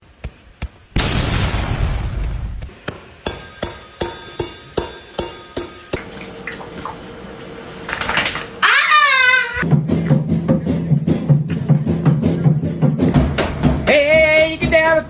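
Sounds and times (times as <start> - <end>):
loud crash: 1.0 - 2.7.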